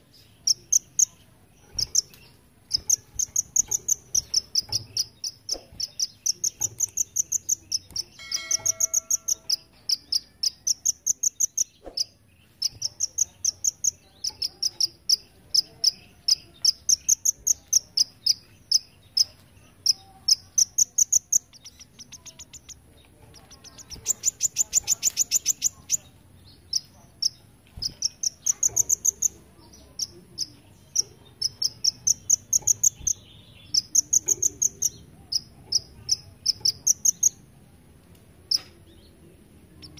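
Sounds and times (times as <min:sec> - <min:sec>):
sunbird chirping: 0:00.0 - 0:37.4.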